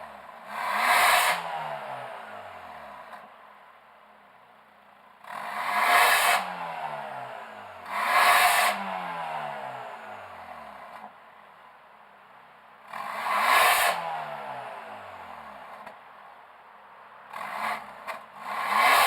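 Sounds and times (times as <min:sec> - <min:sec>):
car engine revving: 0:00.0 - 0:03.3, 0:05.2 - 0:11.1, 0:12.9 - 0:15.9, 0:17.3 - 0:19.0.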